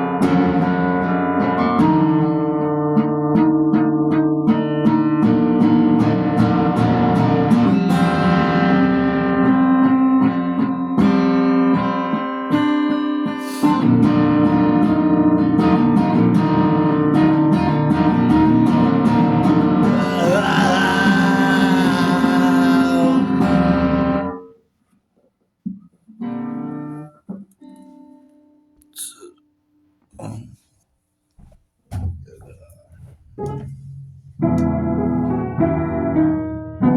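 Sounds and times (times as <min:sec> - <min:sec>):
acoustic guitar picking: 0:00.0 - 0:24.4.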